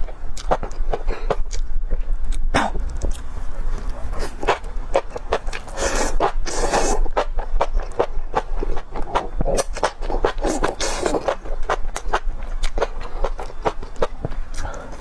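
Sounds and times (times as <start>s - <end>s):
person chewing and biting: 0.0s - 15.0s.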